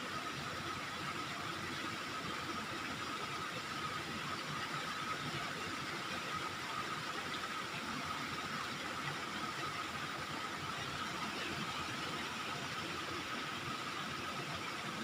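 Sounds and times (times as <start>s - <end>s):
constant high hum: 0.0s - 15.0s.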